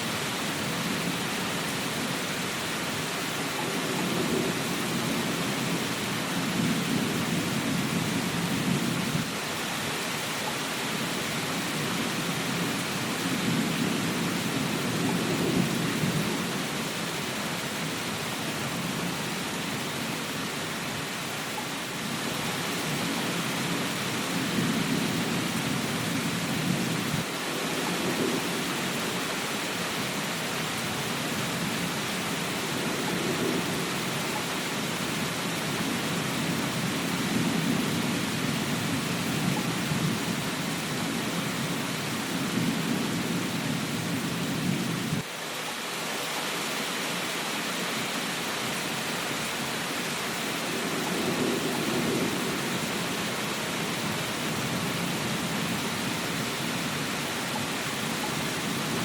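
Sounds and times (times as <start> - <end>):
steady rain hiss: 0.0 - 59.0
low rolling thunder: 3.6 - 9.3, 11.6 - 20.0, 22.0 - 29.3, 30.8 - 34.4, 35.0 - 45.2, 50.6 - 57.2.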